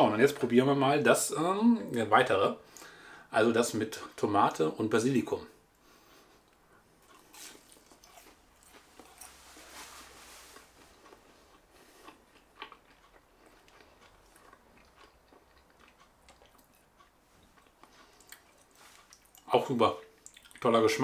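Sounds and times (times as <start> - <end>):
soft crunches while chewing: 5.8 - 20.8
wet mouth clicks: 20.1 - 20.6.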